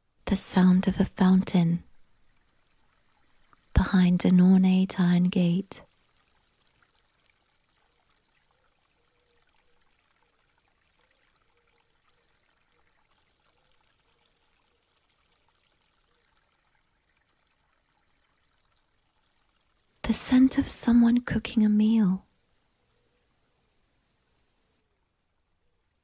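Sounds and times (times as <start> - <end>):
water fountain trickling: 0.3 - 24.8.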